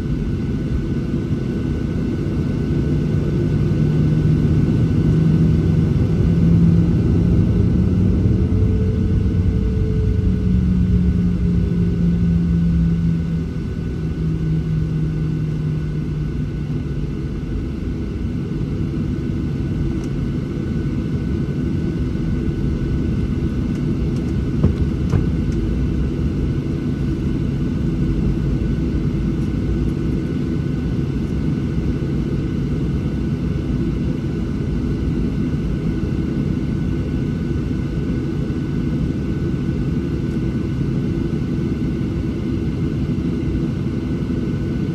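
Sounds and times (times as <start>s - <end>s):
jet engine drone in cabin: 0.0s - 44.9s.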